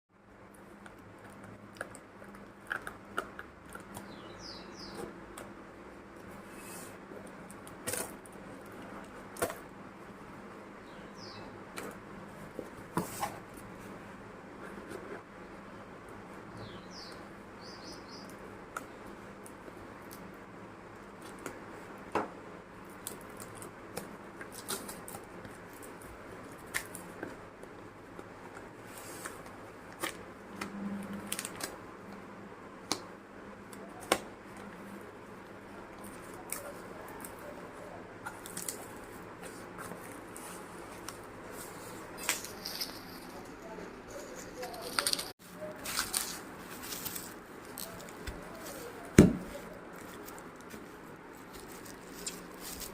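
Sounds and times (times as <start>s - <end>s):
packaging being opened: 44.2s - 49.0s.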